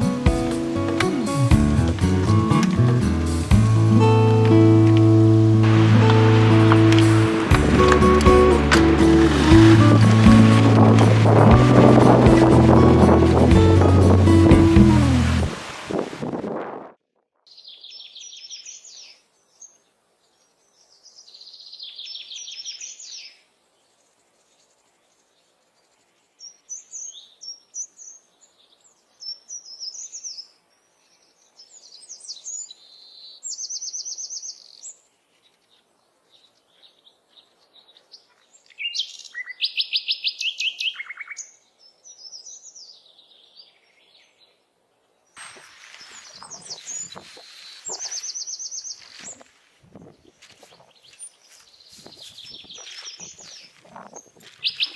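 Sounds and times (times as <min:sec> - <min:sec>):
songbirds trilling and chirping: 0:00.0 - 0:15.6, 0:24.4 - 0:54.9.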